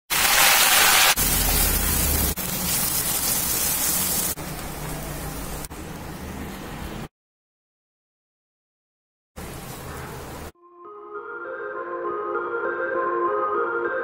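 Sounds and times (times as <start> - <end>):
hot oil sizzling and spitting: 0.0 - 5.7.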